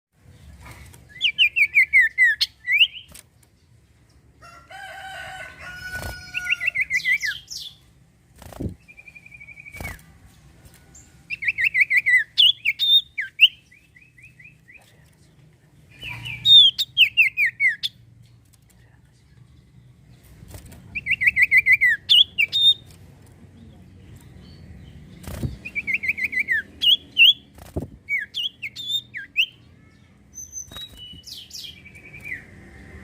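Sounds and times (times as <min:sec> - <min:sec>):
bird chirping and trilling: 0:00.3 - 0:03.8, 0:04.7 - 0:15.0, 0:15.9 - 0:18.1, 0:20.9 - 0:22.9, 0:23.8 - 0:33.0.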